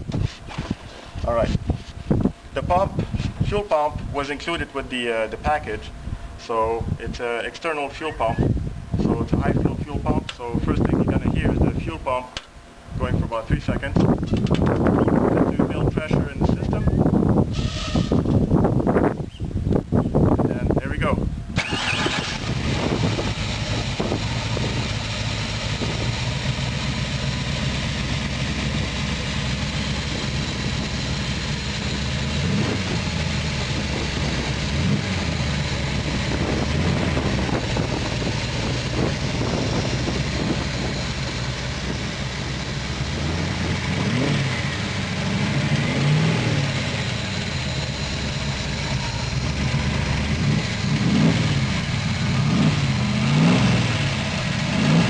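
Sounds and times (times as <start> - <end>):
car engine idling: 21.4 - 55.0.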